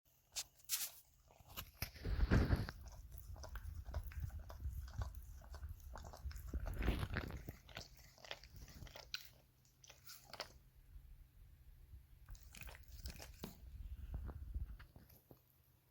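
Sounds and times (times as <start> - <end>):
dog chewing on a toy: 0.8 - 10.7, 12.3 - 14.3.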